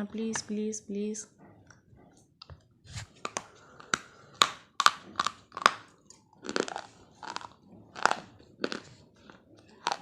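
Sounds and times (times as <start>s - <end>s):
brittle crunching while chewing: 3.1s - 10.0s
dull grinding chews: 3.1s - 10.0s.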